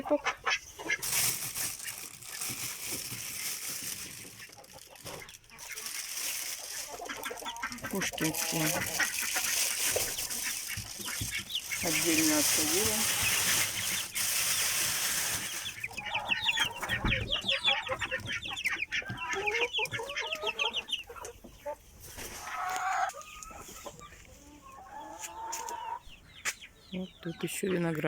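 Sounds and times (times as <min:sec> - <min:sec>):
chickens clucking: 0:00.0 - 0:28.0
chicks peeping: 0:00.0 - 0:28.0
rustling: 0:00.5 - 0:20.0, 0:21.9 - 0:24.4.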